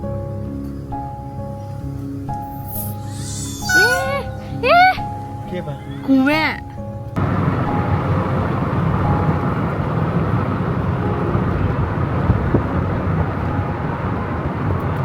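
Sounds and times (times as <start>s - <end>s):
car engine and road noise: 4.4s - 15.0s.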